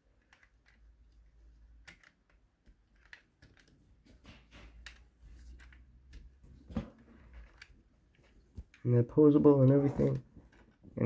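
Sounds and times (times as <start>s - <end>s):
plastic pieces clicking: 0.1s - 3.8s, 7.2s - 8.9s.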